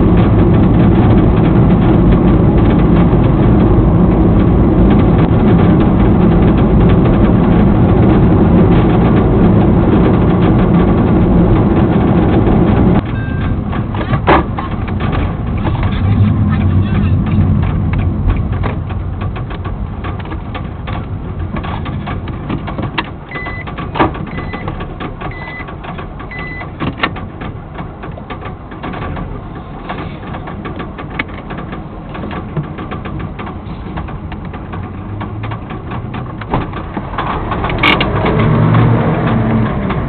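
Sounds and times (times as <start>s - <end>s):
diesel engine knocking: 0.0s - 40.0s
short high beeps: 13.1s - 13.5s, 23.3s - 23.6s, 26.3s - 26.6s.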